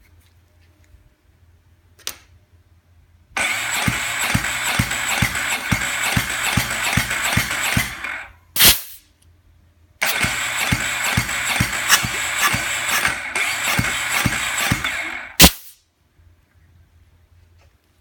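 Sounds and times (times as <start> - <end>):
engine cranking by starter: 3.4 - 8.4, 10.0 - 15.6
short loud hiss: 8.6 - 9.1, 15.4 - 15.8.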